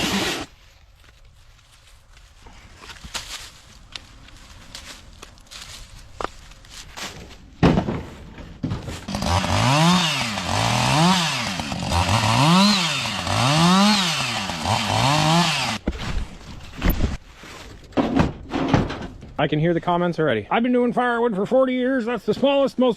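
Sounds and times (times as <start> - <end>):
chainsaw revving: 0.0 - 0.5, 9.1 - 15.8.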